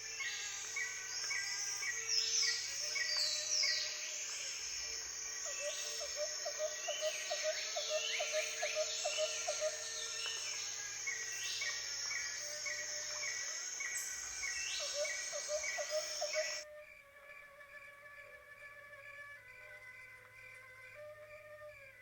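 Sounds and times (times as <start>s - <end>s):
steady hiss: 0.0s - 16.6s
birds chirping and calling: 13.4s - 16.6s.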